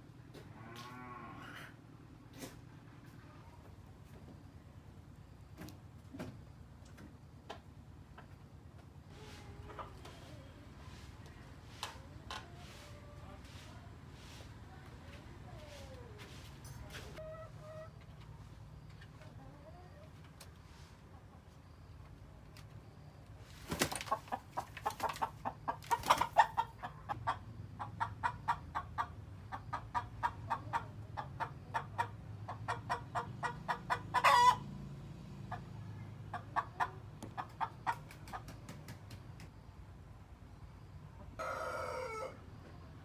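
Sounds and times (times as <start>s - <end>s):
chickens clucking: 5.6s - 14.7s, 15.5s - 39.4s, 41.2s - 42.8s
chicken pitched call: 33.9s - 34.6s, 41.4s - 42.4s.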